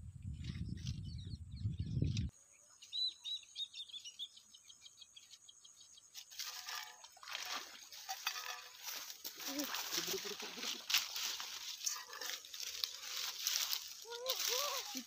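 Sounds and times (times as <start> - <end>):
small bird chirping: 0.2 - 6.3.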